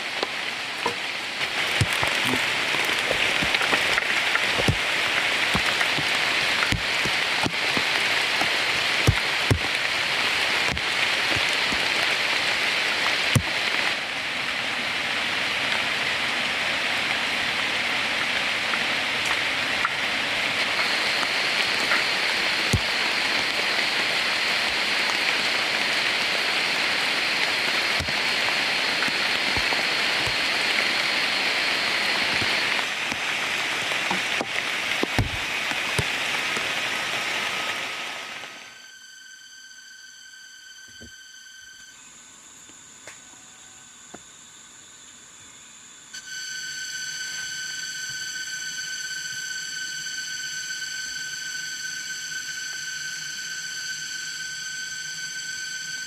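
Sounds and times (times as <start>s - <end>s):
steady rain falling: 0.0s - 38.8s.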